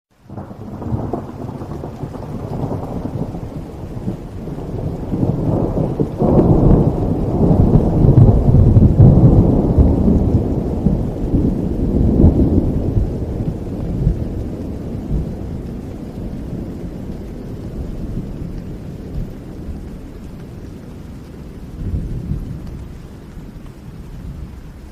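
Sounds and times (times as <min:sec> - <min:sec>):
rain falling: 0:00.1 - 0:24.9
thunder rumbling: 0:00.3 - 0:24.9.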